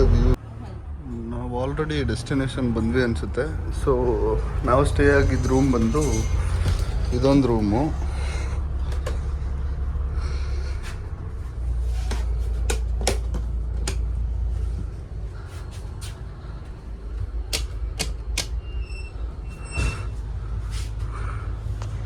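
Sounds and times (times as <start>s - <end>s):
low steady rumble: 0.0s - 22.0s
light switches clicking: 17.5s - 18.6s.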